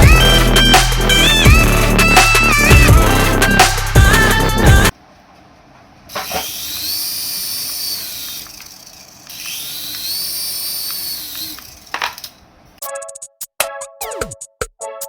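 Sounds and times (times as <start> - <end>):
small electric motor whirring: 6.1 - 12.2.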